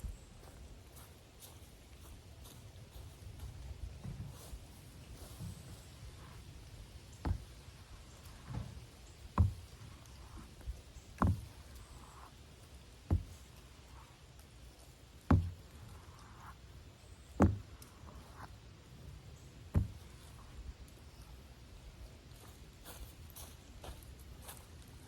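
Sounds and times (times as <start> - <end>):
sharp knocks: 15.3 - 15.6, 17.4 - 18.4.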